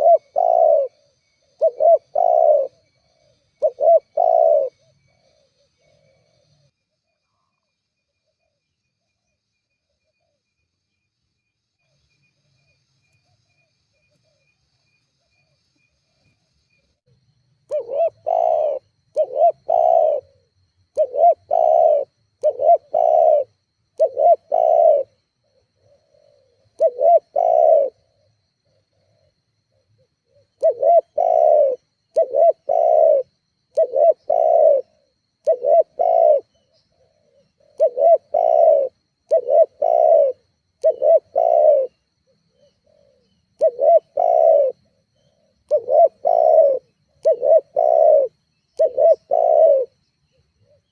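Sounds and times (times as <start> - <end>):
dove cooing: 0.0 - 6.7, 17.7 - 50.9.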